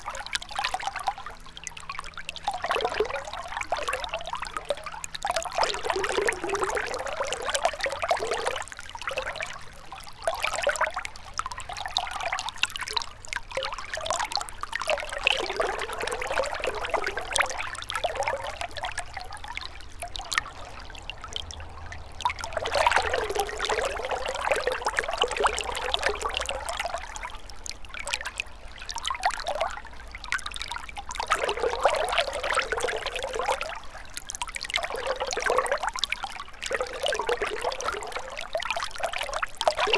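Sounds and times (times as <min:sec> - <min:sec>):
river babbling over stones: 0:19.6 - 0:28.1.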